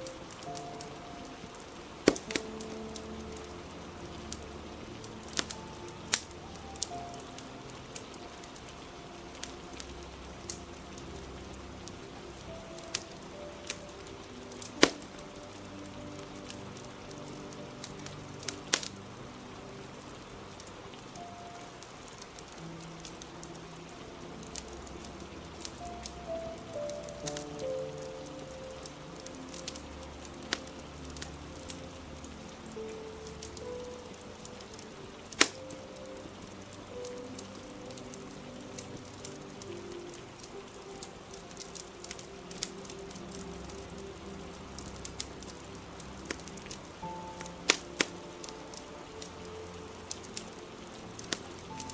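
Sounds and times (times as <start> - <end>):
fire crackling and popping: 0.0 - 51.9
steady rain: 0.0 - 51.9.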